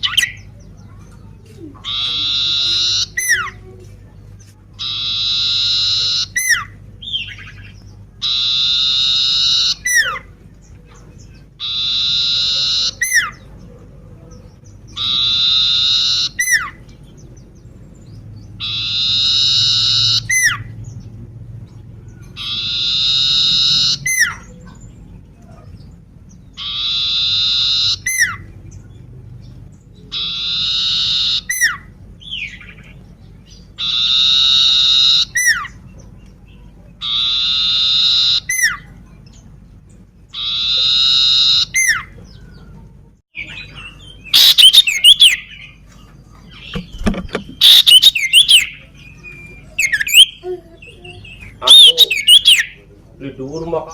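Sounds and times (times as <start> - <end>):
bird singing buzzy whistled phrase: 44.3 - 45.5, 47.6 - 50.4, 51.6 - 52.7.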